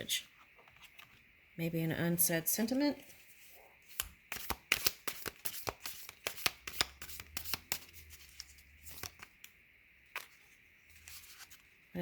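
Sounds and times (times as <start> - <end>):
cards being shuffled: 3.9 - 9.4.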